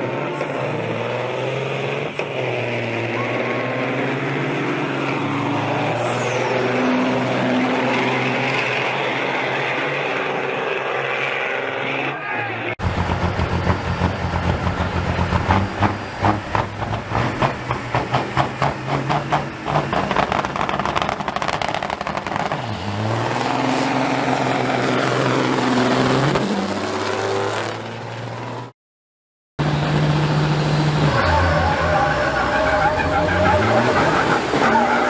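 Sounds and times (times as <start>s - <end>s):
truck diesel engine revving: 12.8s - 27.9s, 29.6s - 35.0s.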